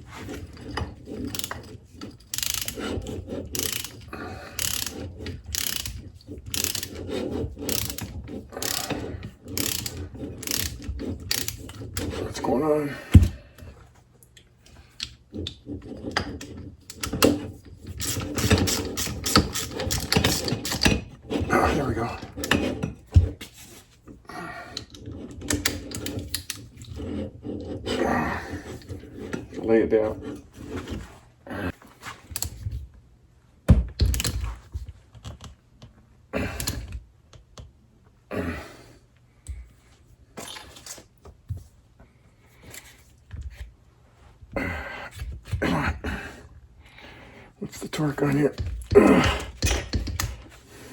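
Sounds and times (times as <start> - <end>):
ratcheting torque wrench clicking: 2.3 - 2.8, 3.5 - 4.0, 4.6 - 7.0, 7.7 - 11.7
tools clattering on a workbench: 16.1 - 23.6, 47.9 - 50.6.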